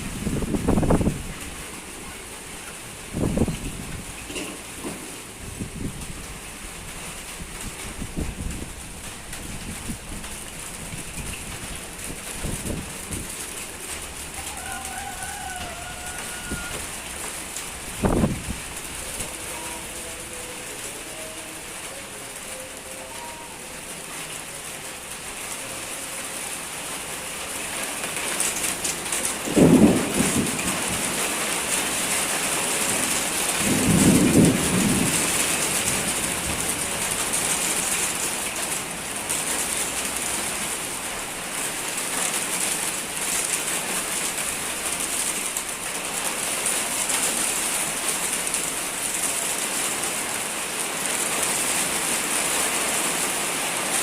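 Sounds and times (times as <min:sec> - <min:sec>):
heavy rain pouring: 0:00.0 - 0:54.0
thunder: 0:29.4 - 0:31.5, 0:33.5 - 0:36.9.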